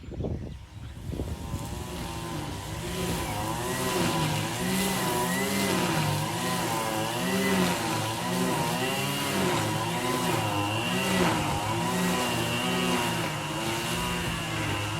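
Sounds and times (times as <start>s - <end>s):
motor running with wobbling pitch: 0.6s - 14.9s.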